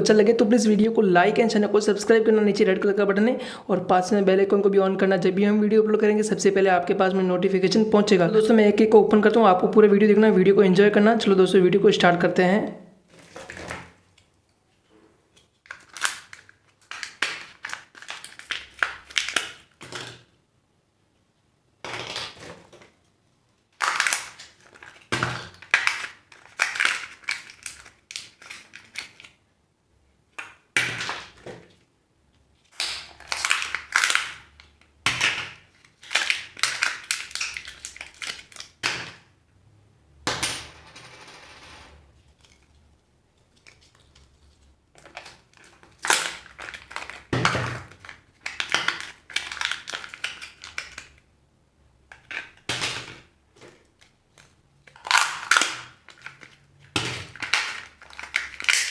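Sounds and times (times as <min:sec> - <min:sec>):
wrappers crinkling and tearing: 0:15.6 - 0:19.8, 0:23.8 - 0:29.4, 0:32.6 - 0:38.8, 0:43.4 - 0:51.2, 0:53.8 - 0:58.9
plastic capsules snapping open: 0:45.0 - 0:51.2, 0:52.1 - 0:53.2, 0:54.0 - 0:58.9.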